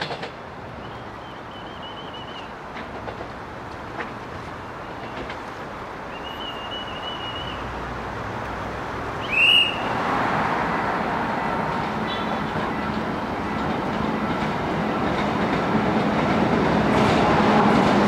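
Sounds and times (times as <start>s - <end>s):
electric train rumble: 0.0s - 18.0s
street traffic: 0.0s - 18.0s
high-pitched rising whistle: 9.2s - 10.0s.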